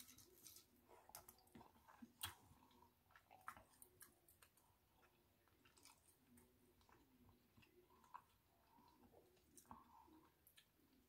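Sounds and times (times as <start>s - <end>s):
faint chewing: 0.0s - 11.0s.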